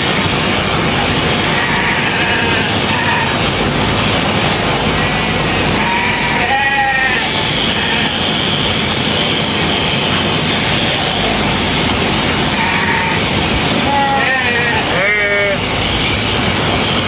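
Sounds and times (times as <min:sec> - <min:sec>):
sheep-shearing clippers running: 0:00.0 - 0:17.0
sheep bleating: 0:01.4 - 0:03.5, 0:04.9 - 0:08.5, 0:12.4 - 0:15.7.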